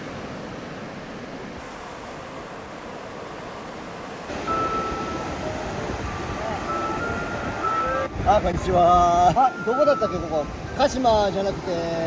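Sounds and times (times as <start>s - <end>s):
ocean surf: 0.0s - 12.0s
wind: 0.0s - 12.0s
steady high tone: 4.3s - 8.2s, 9.3s - 11.2s.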